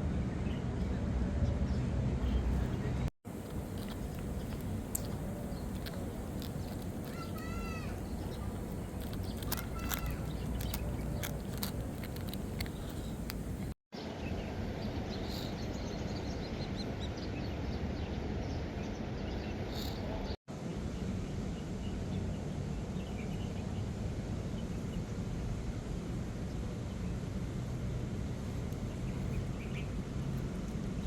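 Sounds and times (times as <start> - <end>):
bird chirps: 2.3 - 13.7.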